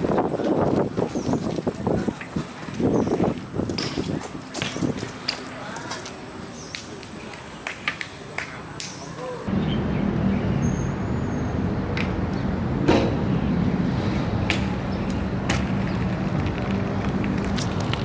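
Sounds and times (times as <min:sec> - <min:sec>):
loud knock: 0:12.8 - 0:13.2.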